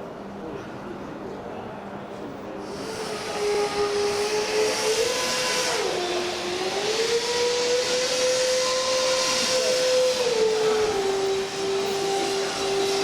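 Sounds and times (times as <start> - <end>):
model motor and propeller whining: 2.7 - 13.0.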